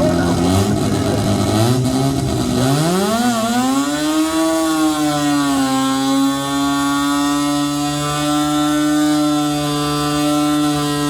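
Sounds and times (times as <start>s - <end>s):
rotary engine revving hard: 0.0s - 11.0s.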